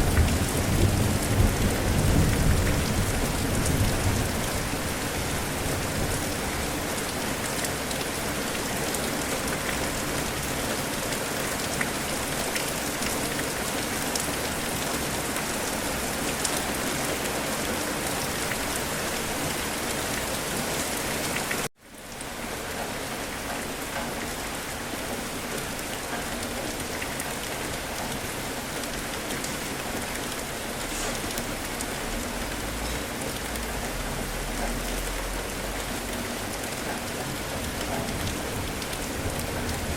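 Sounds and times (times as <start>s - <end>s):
rain falling: 0.0s - 39.9s
raindrop ticks: 25.4s - 30.5s, 31.1s - 39.9s.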